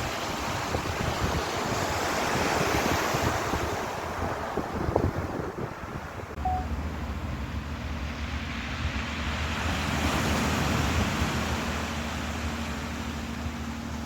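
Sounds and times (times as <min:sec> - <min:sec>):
ocean surf washing in: 0:00.0 - 0:14.0
low hum: 0:06.4 - 0:09.6.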